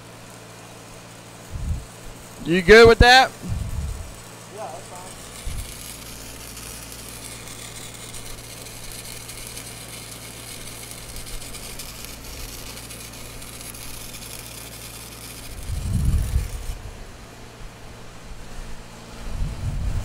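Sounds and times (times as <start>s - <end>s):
welding arc crackling hiss: 0.0s - 19.2s
low rumble: 3.4s - 4.2s, 15.6s - 17.8s, 18.4s - 20.0s.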